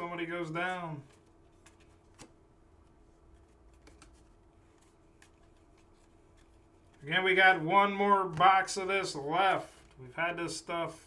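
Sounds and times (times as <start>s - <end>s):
trading cards being handled: 0.2s - 10.1s.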